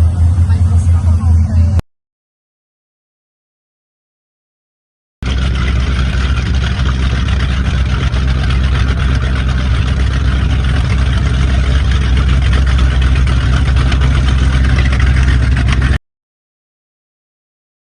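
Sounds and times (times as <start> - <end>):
powerboat engines rumbling: 0.0 - 1.8, 5.2 - 16.0.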